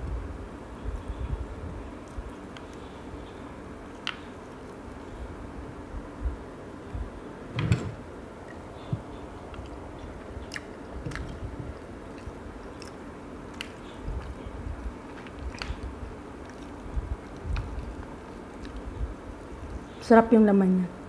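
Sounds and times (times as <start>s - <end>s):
wet chewing: 0.8s - 5.4s, 8.4s - 20.0s.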